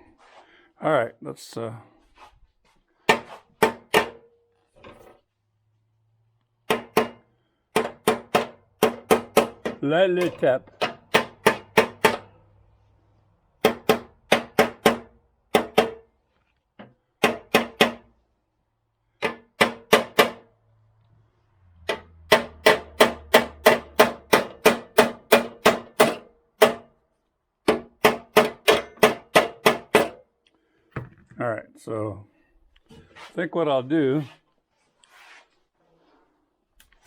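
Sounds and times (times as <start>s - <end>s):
hammer tapping on metal: 6.7s - 12.3s, 13.6s - 16.0s, 17.2s - 18.1s, 19.2s - 20.4s, 21.9s - 26.9s, 27.6s - 30.2s.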